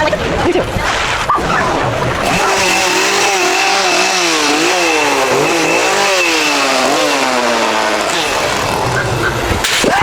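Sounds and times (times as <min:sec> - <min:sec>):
chainsaw revving: 0:02.1 - 0:09.9.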